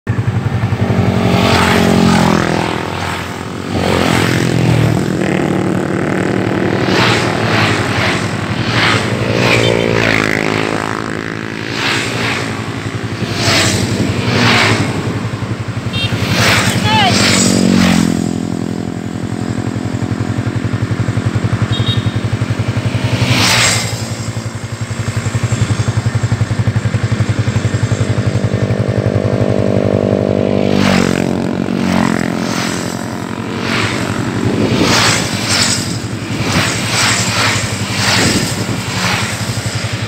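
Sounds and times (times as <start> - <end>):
gusts of rushing noise: 0.1 - 20.0, 30.9 - 40.0
motorcycle engine running: 0.1 - 40.0.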